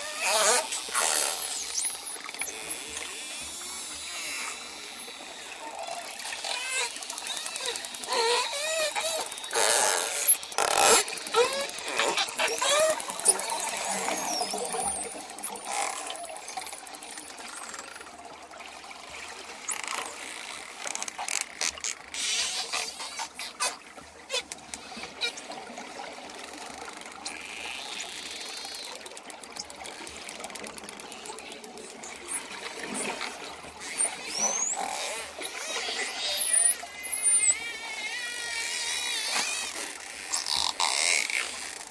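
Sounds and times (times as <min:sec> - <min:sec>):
dolphins whistling: 0:03.7 - 0:17.3, 0:33.3 - 0:39.7.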